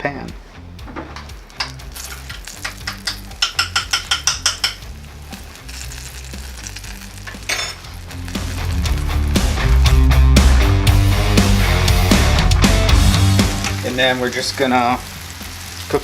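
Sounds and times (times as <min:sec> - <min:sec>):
food sizzling in a pan: 0:01.4 - 0:10.2, 0:13.2 - 0:16.0.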